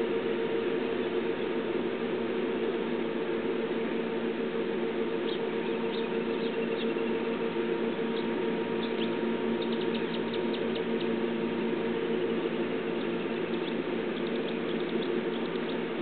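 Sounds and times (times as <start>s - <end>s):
low hum and hiss: 0.0s - 16.0s
small birds chirping: 5.0s - 16.0s.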